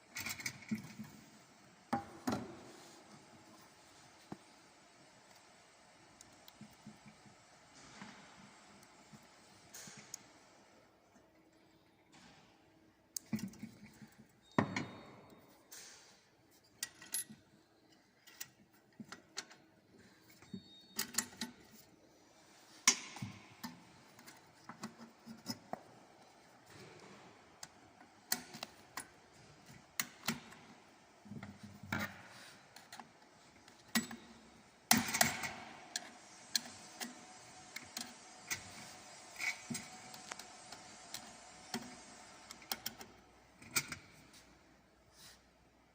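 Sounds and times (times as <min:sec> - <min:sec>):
tools and parts clinking: 0:00.0 - 0:01.3, 0:13.2 - 0:21.9, 0:26.6 - 0:44.4.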